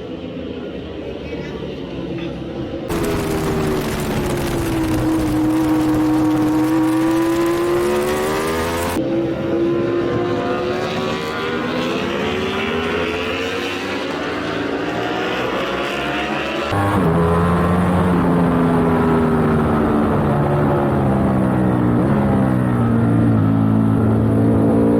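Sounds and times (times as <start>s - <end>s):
wind rush: 2.9s - 9.0s
motorcycle engine at high revs: 2.9s - 24.9s.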